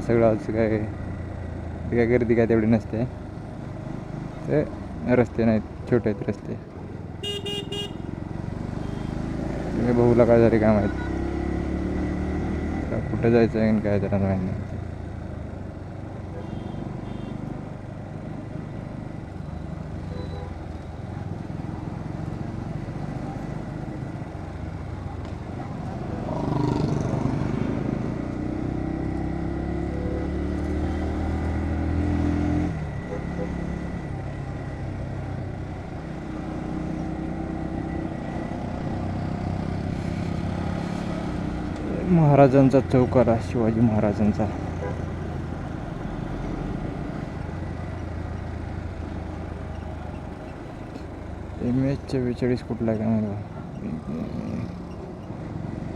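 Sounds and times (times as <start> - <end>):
wind and road noise: 0.0 - 55.9
faint short beeps: 20.1 - 20.5
motorcycle engine running: 43.8 - 54.6.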